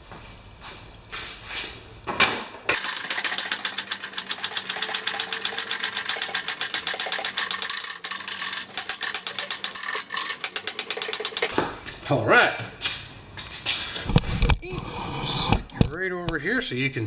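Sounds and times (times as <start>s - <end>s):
rapid mechanical clicking: 2.8s - 11.6s.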